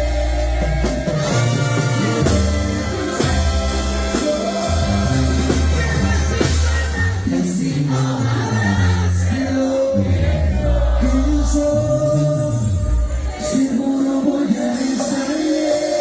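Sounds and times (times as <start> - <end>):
drums keeping the beat: 0.0 - 9.5
tuba bass line: 0.0 - 14.0
brass horns: 0.0 - 16.0.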